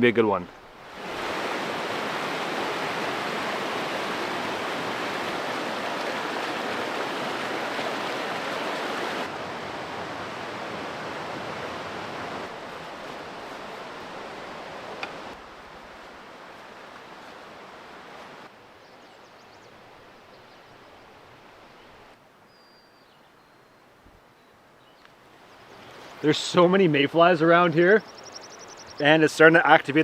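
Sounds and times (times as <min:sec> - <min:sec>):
river rushing over rapids: 0:00.6 - 0:18.5.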